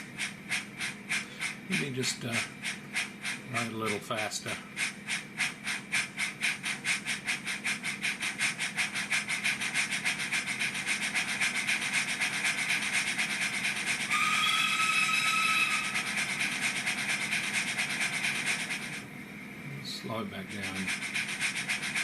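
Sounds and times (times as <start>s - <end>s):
train whistle tone: 14.1s - 16.2s.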